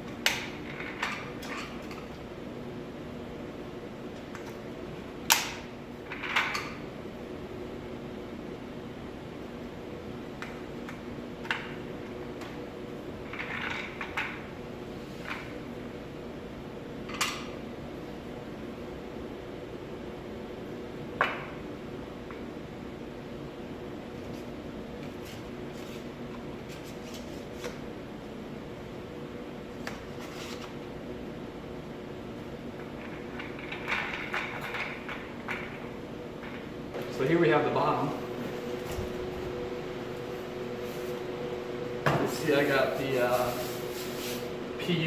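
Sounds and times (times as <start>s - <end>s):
steady background hum: 0.0s - 45.0s
chair parts clicking and knocking: 32.8s - 36.7s.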